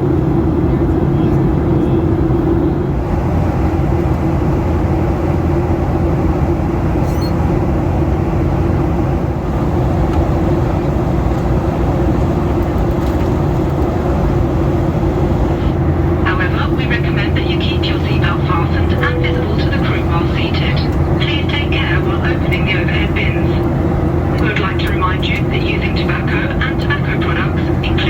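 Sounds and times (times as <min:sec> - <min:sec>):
airplane cabin engine drone: 0:00.0 - 0:28.0.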